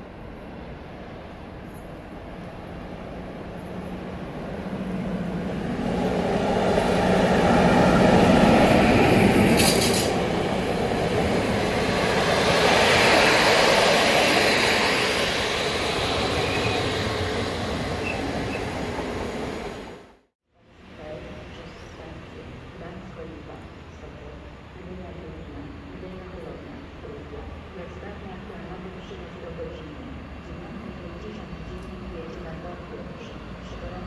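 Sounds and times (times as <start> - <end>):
diesel locomotive engine hum: 0.0 - 20.2
rolling rumble of train wheels: 0.0 - 20.2.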